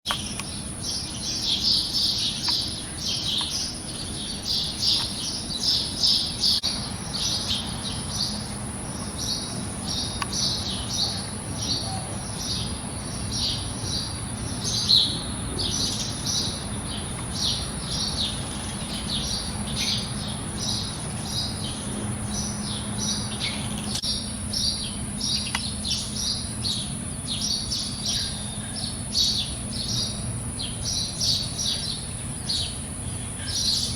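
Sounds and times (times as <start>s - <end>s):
birds chirping: 0.1s - 33.9s.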